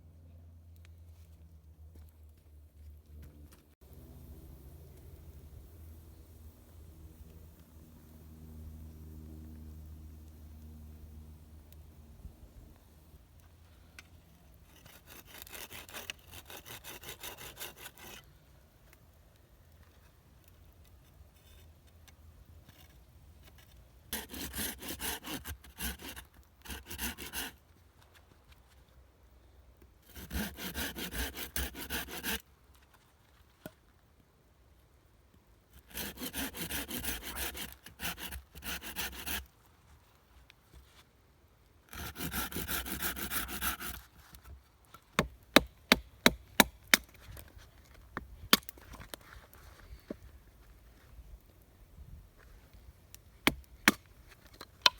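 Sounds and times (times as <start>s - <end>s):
hand saw cutting wood: 14.6s - 18.3s, 24.1s - 27.6s, 30.0s - 32.4s, 35.8s - 39.5s, 41.9s - 44.4s, 45.2s - 47.4s, 53.4s - 54.9s.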